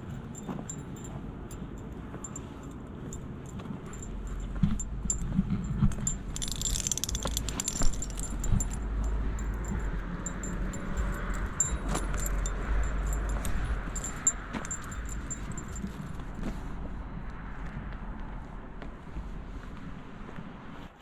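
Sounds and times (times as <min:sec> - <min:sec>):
light metallic jingling: 0:00.0 - 0:16.4
vehicle rumble: 0:00.0 - 0:20.8
small clicks: 0:05.8 - 0:08.8.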